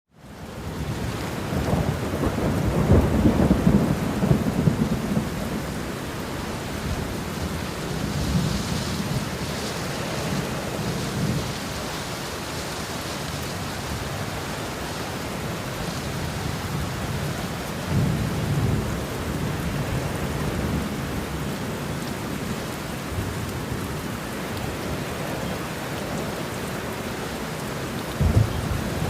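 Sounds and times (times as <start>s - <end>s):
steady rain falling: 0.1s - 29.0s
thunder rumbling: 0.6s - 11.8s, 13.4s - 22.4s, 27.4s - 29.0s.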